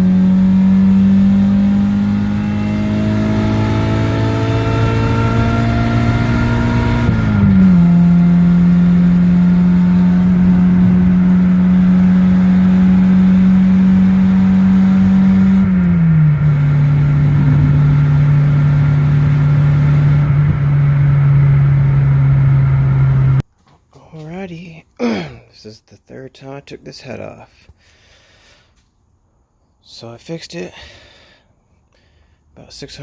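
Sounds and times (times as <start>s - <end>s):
motor running loudly: 10.4s - 23.4s.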